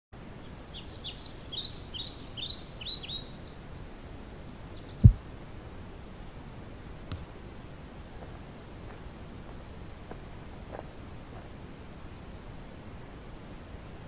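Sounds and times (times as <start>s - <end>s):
birds chirping: 0.4s - 5.2s.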